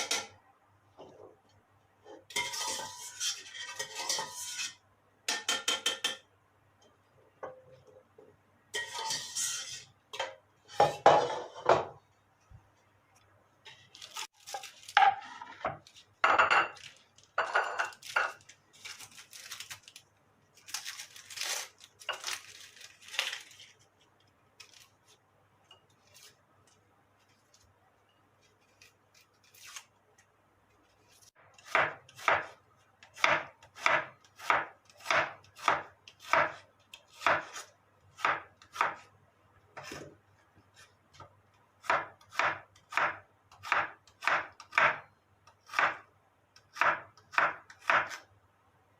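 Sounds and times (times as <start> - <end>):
knife chopping on cutting board: 31.6 - 39.0, 41.8 - 45.0, 45.6 - 46.0, 46.7 - 48.2.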